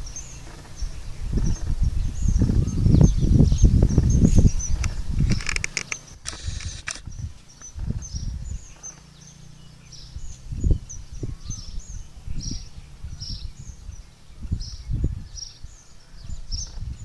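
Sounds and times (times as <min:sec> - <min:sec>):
brief hiss: 0:06.2 - 0:07.1.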